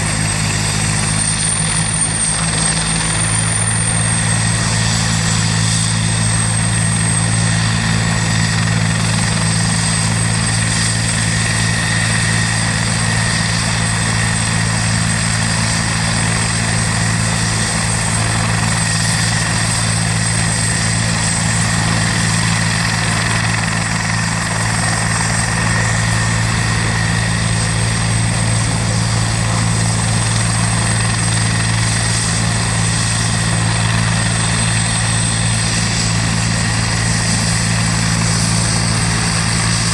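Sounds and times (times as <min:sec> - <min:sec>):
helicopter low drone: 0:00.0 - 0:39.9
high-pitched helicopter whine: 0:00.0 - 0:39.9.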